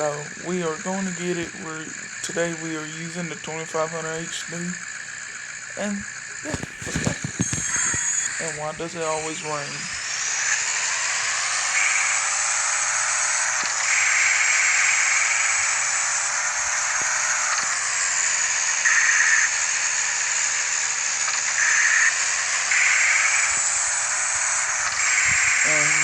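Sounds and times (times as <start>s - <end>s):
faint low hum: 0.0s - 10.6s.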